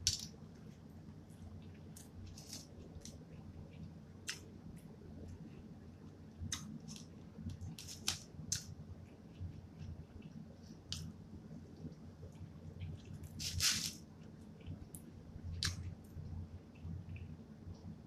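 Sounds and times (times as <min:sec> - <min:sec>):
low steady hum: 0:00.0 - 0:18.0
person chewing: 0:01.4 - 0:11.1, 0:11.8 - 0:16.0.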